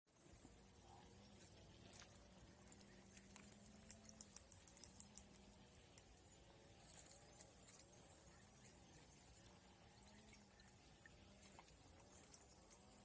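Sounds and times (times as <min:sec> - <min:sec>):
low steady hum: 0:00.1 - 0:13.0
faint clicks: 0:01.9 - 0:06.2.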